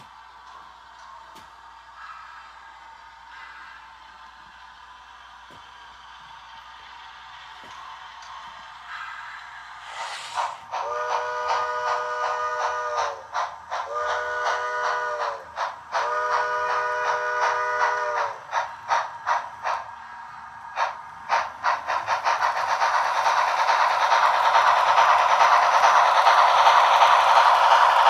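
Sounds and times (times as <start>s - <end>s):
train rushing hiss and rattle: 0.0s - 28.0s
steam locomotive chime whistle: 10.7s - 18.4s.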